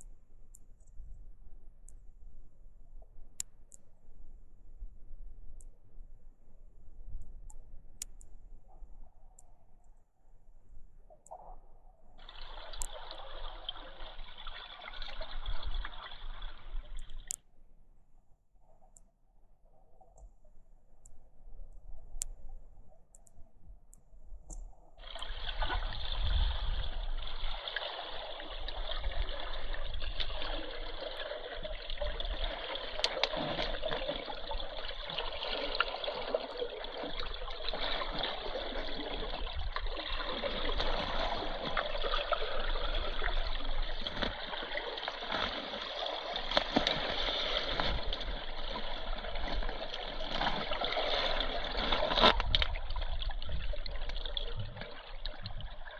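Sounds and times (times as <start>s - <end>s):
faint clicks: 20.0s - 24.9s.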